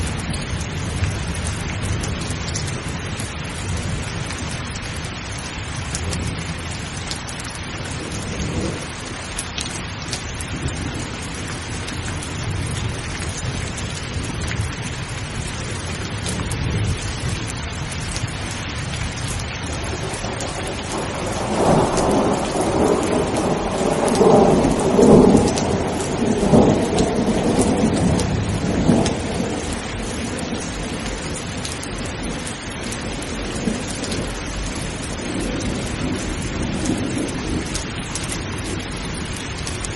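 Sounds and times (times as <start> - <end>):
heavy rain falling: 0.0 - 39.9
thunder rolling: 19.6 - 39.9.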